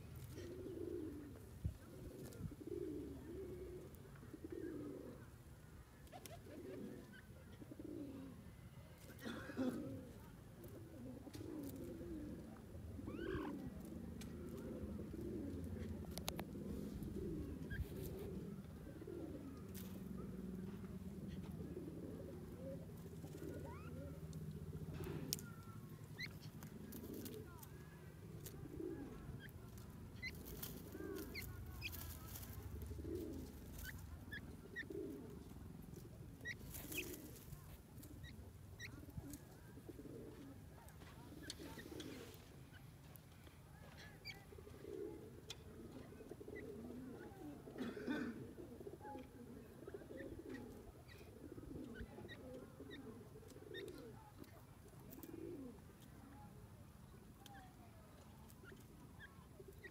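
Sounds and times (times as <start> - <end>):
soft low bird calls: 10.0 - 20.7, 21.3 - 47.7.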